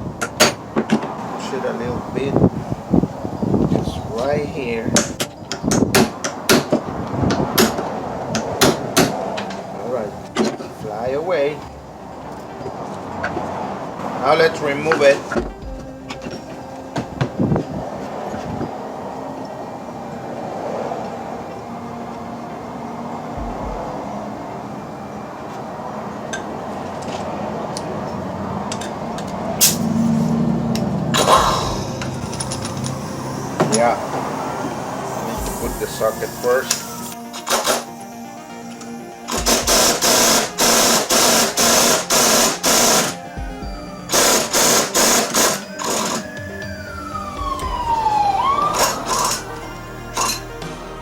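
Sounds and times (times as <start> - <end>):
steady low buzz: 21.3 - 25.4, 29.4 - 45.3
sharp metallic click: 28.7 - 29.9
air tool bursts: 29.6 - 30.3, 31.2 - 33.7, 35.1 - 38.2, 39.3 - 43.2, 44.1 - 46.2
metal tools clinking: 30.8 - 34.0, 48.8 - 50.6.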